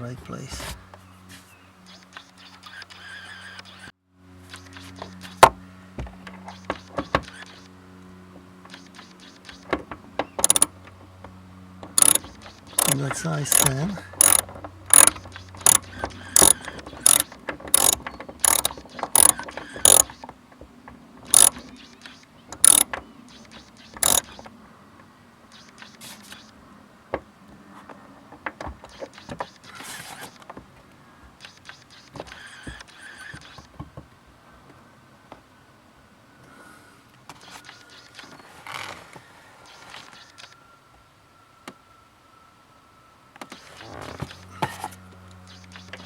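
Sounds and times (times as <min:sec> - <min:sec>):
metal screws and nuts clicking: 0:10.4 - 0:10.7, 0:12.0 - 0:15.8, 0:16.4 - 0:20.1, 0:21.3 - 0:21.6, 0:22.6 - 0:22.9, 0:24.0 - 0:24.3
ratchet clicks: 0:10.4 - 0:10.7, 0:12.0 - 0:20.1, 0:21.3 - 0:21.6, 0:22.5 - 0:22.9, 0:24.0 - 0:24.4.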